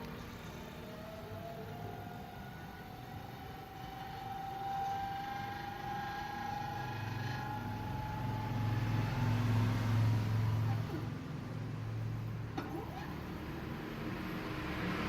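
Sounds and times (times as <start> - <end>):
motor high whine: 0.0 - 11.2.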